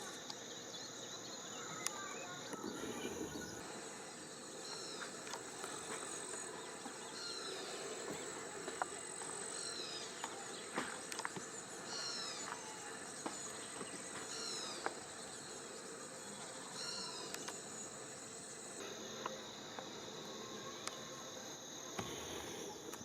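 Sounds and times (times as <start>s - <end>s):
insect chorus buzzing: 0.0s - 23.0s
faint clicks: 17.3s - 17.6s.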